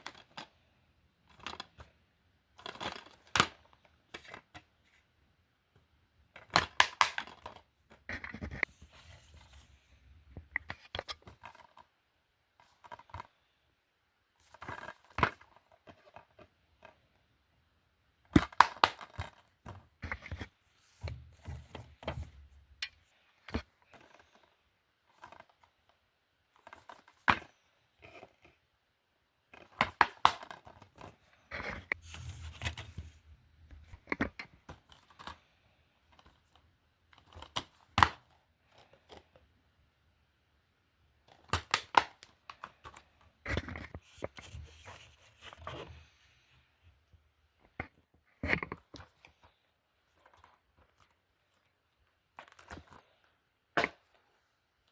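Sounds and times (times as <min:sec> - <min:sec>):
plastic cases clicking and knocking: 0:18.3 - 0:24.5.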